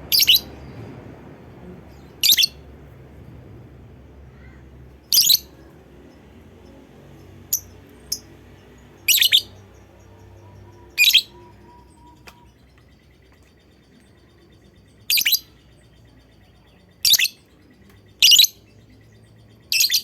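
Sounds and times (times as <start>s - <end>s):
soft bird chirps: 0.0s - 3.4s, 4.2s - 20.0s
lovebird shrill calls: 0.1s - 0.5s, 2.2s - 2.6s, 5.0s - 5.5s, 9.0s - 9.6s, 10.6s - 12.4s, 15.1s - 15.5s.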